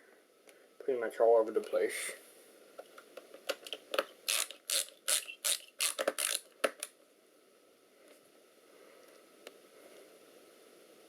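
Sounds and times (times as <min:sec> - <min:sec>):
screwdriver ratcheting clicks: 0:04.3 - 0:06.8.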